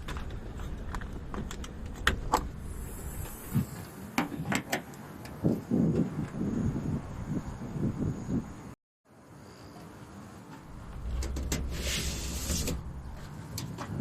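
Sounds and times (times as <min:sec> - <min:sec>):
low rumble: 0:10.6 - 0:14.0
sharp clicks and knocks: 0:10.9 - 0:14.0.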